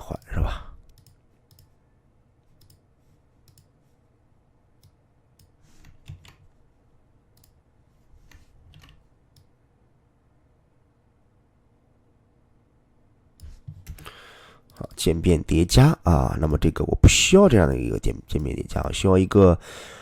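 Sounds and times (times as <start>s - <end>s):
faint computer mouse clicks: 0.9s - 1.7s, 2.6s - 2.8s, 3.4s - 3.7s, 7.4s - 7.6s.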